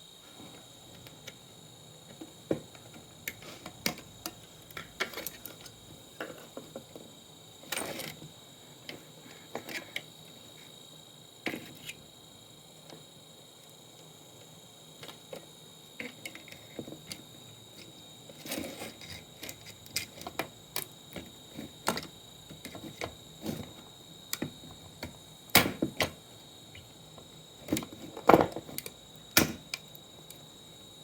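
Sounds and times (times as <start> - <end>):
clicks and knocks of tools: 2.1 - 7.0, 17.8 - 23.7, 27.6 - 30.4.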